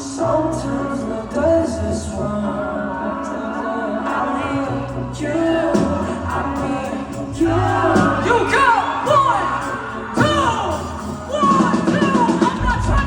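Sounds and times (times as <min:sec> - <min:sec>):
person singing: 0:00.0 - 0:13.0
live band playing: 0:05.7 - 0:13.0.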